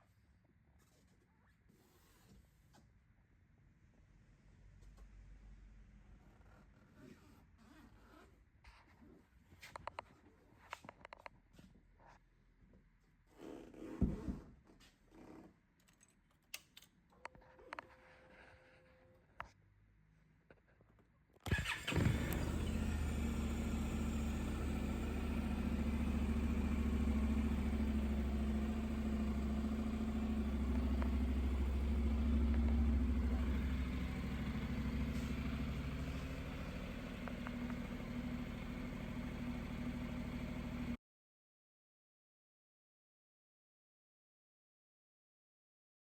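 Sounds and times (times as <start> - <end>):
motorcycle engine starting and idling: 21.5 - 41.0.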